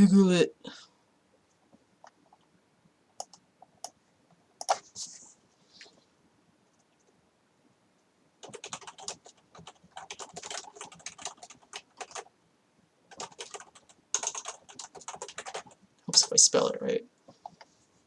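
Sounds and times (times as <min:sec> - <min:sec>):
typing on a keyboard: 0:03.2 - 0:04.0, 0:08.4 - 0:12.3, 0:13.1 - 0:16.3.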